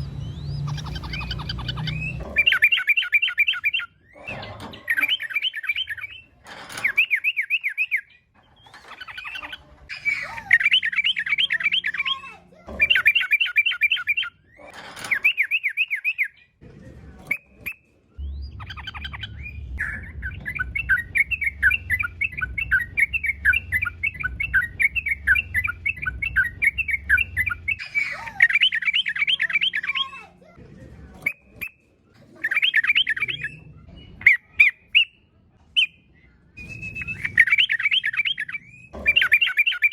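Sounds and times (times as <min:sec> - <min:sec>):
bird singing warbled phrases: 0:00.0 - 0:16.6, 0:17.2 - 0:30.6, 0:31.2 - 0:39.9
low steady hum: 0:18.1 - 0:31.3.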